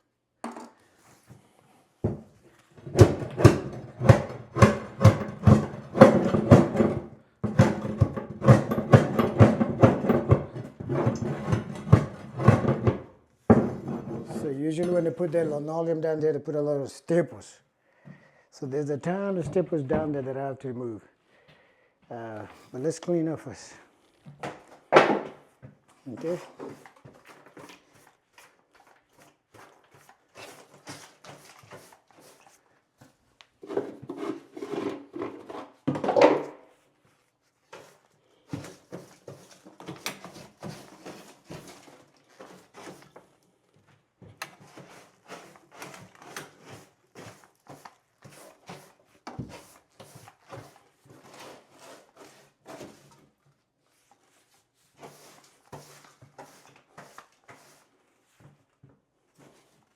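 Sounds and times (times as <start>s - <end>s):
debris scraping on subfloor: 33.6s - 36.2s.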